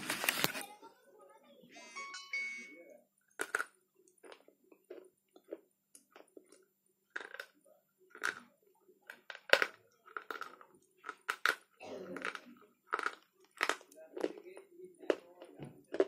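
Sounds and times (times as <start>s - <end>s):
dry crisp crunches of chewing: 3.4s - 8.5s, 9.1s - 16.0s.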